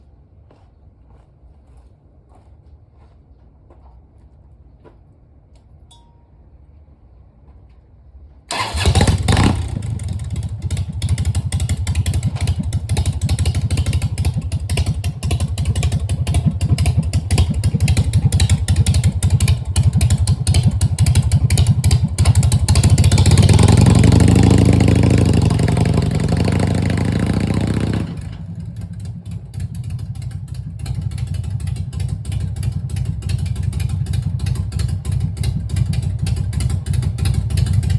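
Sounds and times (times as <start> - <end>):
motorcycle engine starting and running: 8.5 - 37.9.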